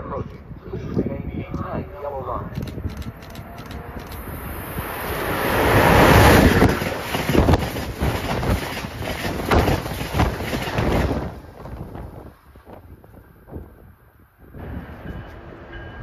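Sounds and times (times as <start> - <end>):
passenger train roaring past: 1.8 - 16.0
train wheel knocks: 6.5 - 11.4.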